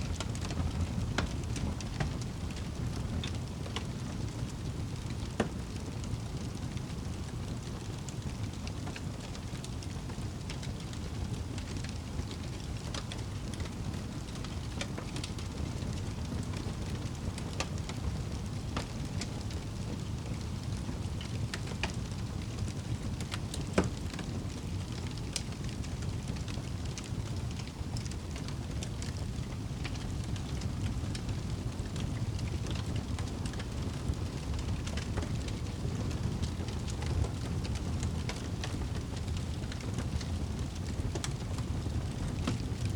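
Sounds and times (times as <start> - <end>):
wood fire crackling and popping: 0.0 - 42.9.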